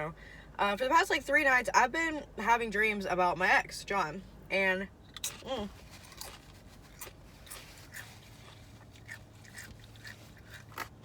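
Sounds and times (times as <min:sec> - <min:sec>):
person chewing food: 0:05.2 - 0:11.0.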